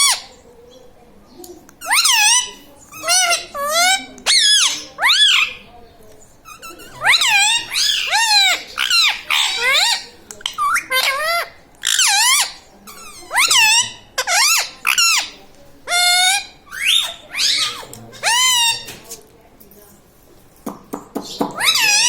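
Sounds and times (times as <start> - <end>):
parrot squawking: 0.0 - 0.4, 1.8 - 5.7, 6.4 - 19.0, 21.6 - 22.0.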